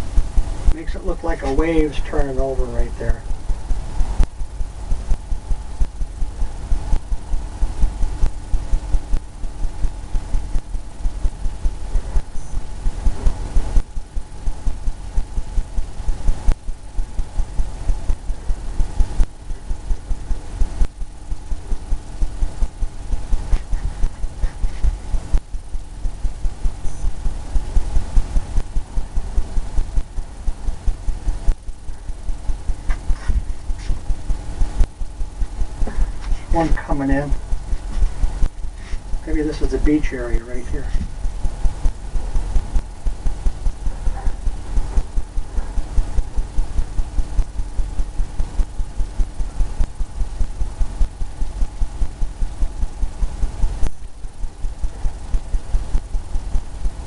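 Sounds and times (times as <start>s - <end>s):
paintbrush scrubbing on canvas: 32.9s - 34.0s.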